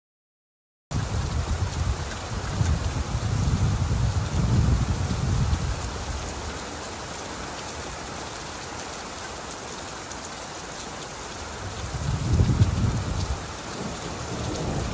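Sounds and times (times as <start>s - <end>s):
rain pattering: 0.9s - 14.9s
thunder rumble: 11.9s - 14.9s.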